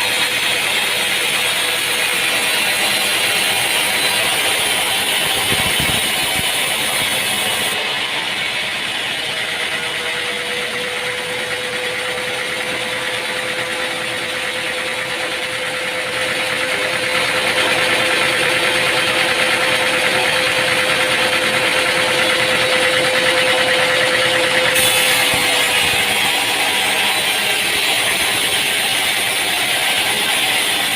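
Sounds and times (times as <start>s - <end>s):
mechanical whir: 0.0s - 30.9s
sawmill machinery hum: 0.0s - 30.9s.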